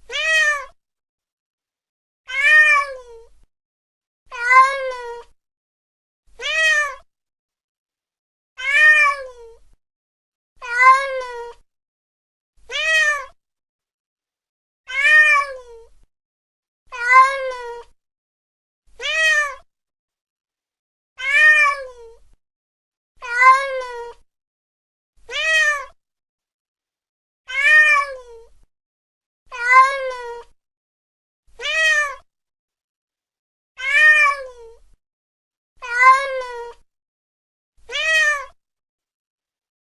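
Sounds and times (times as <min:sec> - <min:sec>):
cat meowing: 0:00.0 - 0:00.8, 0:02.3 - 0:03.2, 0:04.3 - 0:05.4, 0:06.4 - 0:07.0, 0:08.6 - 0:09.6, 0:10.6 - 0:11.6, 0:12.7 - 0:13.4, 0:14.9 - 0:15.9, 0:16.9 - 0:18.0, 0:19.0 - 0:19.6, 0:21.2 - 0:22.2, 0:23.2 - 0:24.2, 0:25.3 - 0:26.0, 0:27.5 - 0:28.5, 0:29.5 - 0:30.6, 0:31.6 - 0:32.3, 0:33.8 - 0:34.8, 0:35.8 - 0:36.8, 0:37.9 - 0:38.6.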